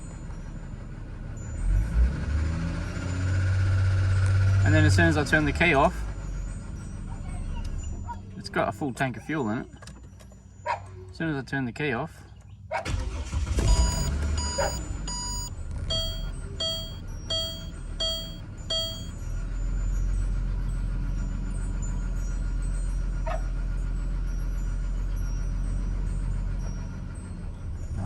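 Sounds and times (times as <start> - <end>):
dashboard warning chime beeping: 13.6 - 19.1.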